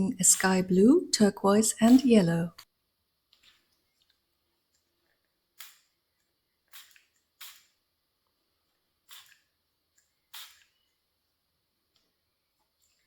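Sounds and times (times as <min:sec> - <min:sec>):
spray bottle spritzes: 0:06.7 - 0:07.8, 0:09.0 - 0:09.5, 0:10.3 - 0:10.8.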